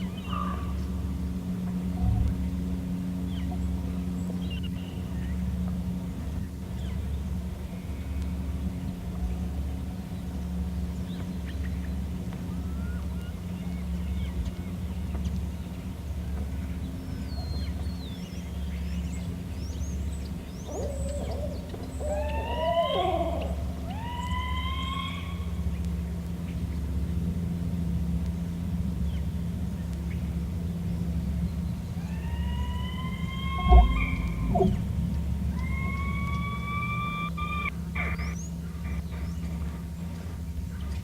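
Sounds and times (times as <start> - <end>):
owl hooting: 0.0 - 0.9, 20.6 - 25.8, 31.9 - 39.6
rising higher owl calls: 0.0 - 1.1, 12.5 - 13.8, 20.5 - 25.8, 31.7 - 39.3
steady low hum: 0.0 - 41.0.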